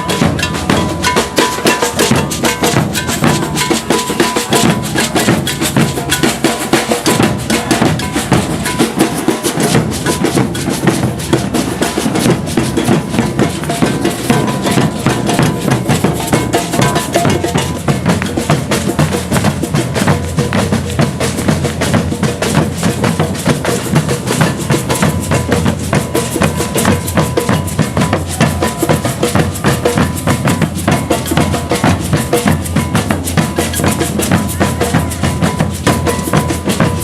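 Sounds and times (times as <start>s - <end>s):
iron bell: 0.0s - 11.2s
snare drums: 0.0s - 37.0s.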